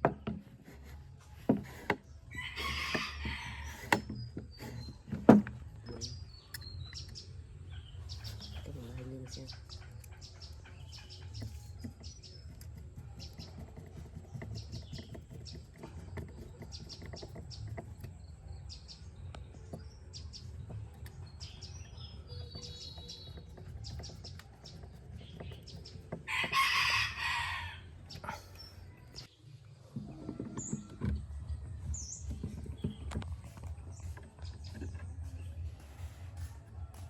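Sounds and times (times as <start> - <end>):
rooster crowing: 2.3 - 3.9, 26.3 - 28.0.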